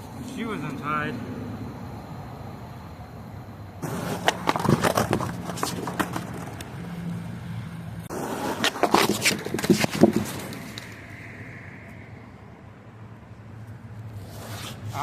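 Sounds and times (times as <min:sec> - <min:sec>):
skateboard clacks and knocks: 0:03.8 - 0:06.8, 0:08.1 - 0:10.8
skateboard rolling on pavement: 0:03.8 - 0:11.1, 0:14.1 - 0:15.0.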